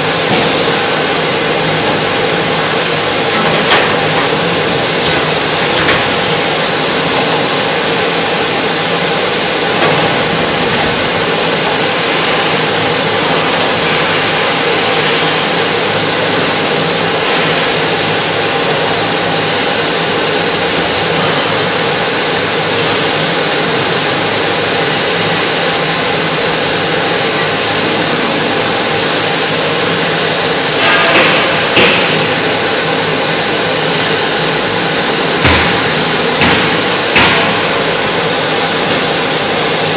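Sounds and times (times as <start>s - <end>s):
excavator diesel engine running: 0.0s - 19.3s.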